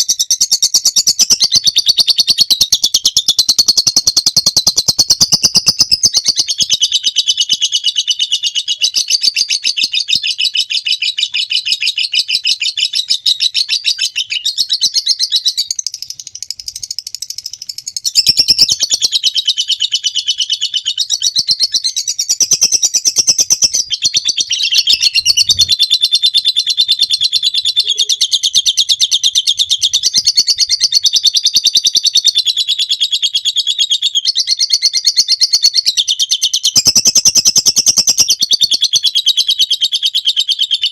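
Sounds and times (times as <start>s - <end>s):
lovebird chattering trill: 0.0s - 33.0s.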